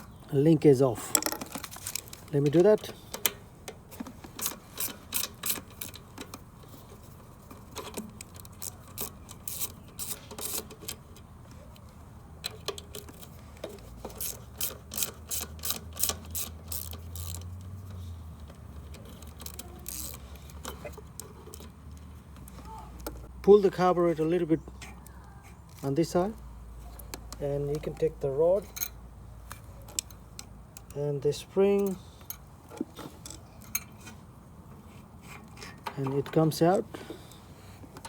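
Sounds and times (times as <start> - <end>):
hand ratchet clicking: 1.2 - 6.5, 7.7 - 11.2, 12.4 - 22.1.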